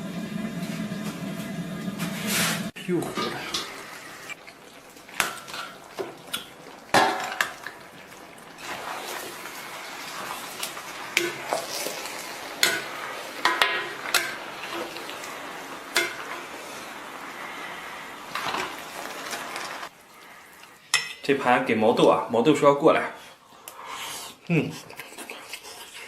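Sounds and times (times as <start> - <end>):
sizzling hiss: 0.0 - 22.2
metal utensils scraping a pot: 8.5 - 15.3, 15.9 - 17.0.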